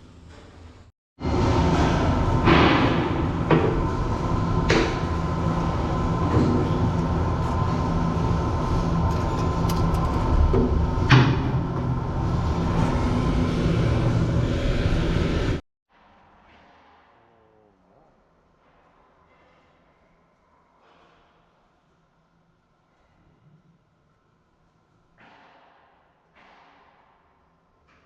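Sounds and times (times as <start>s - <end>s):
rumbling machinery: 3.2s - 15.6s.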